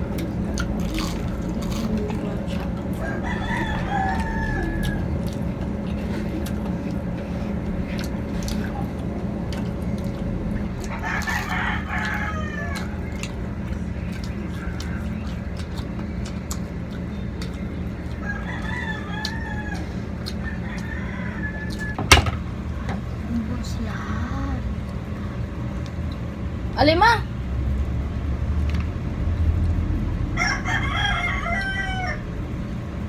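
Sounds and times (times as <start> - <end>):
low hum: 0.0 - 33.0
rooster crowing: 2.8 - 5.5, 10.9 - 13.1, 18.1 - 22.0, 30.3 - 32.6.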